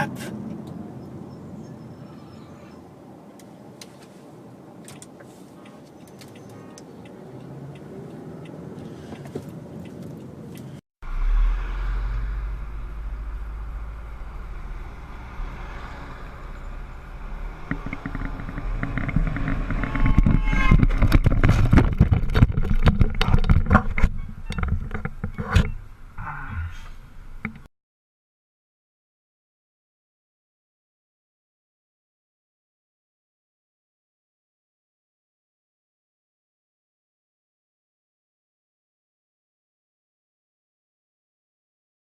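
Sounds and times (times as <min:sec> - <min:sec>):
vehicle road noise: 0:00.0 - 0:27.7
heavy low rumble: 0:11.0 - 0:27.5.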